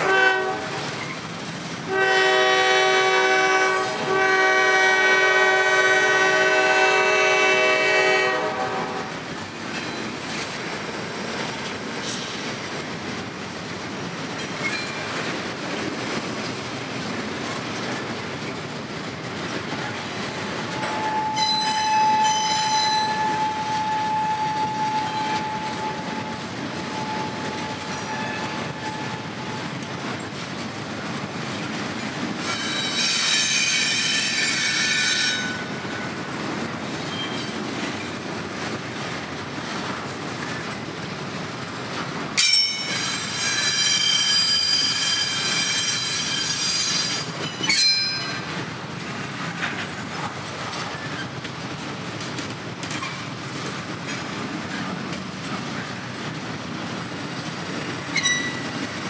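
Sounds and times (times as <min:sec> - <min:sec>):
freight train rolling past: 0:00.0 - 0:59.0
high-pitched wheel squeal: 0:20.8 - 0:26.3, 0:42.8 - 0:48.3.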